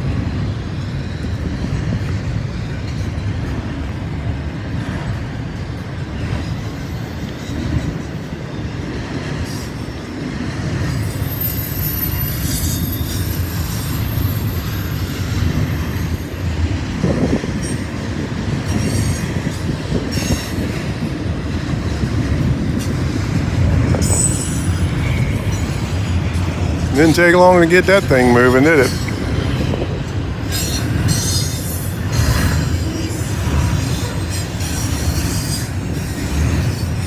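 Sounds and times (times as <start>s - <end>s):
train wheels rumbling on rails: 0.0s - 37.0s
high-pitched wheel squeals: 10.9s - 16.6s, 24.0s - 26.2s, 30.4s - 37.0s.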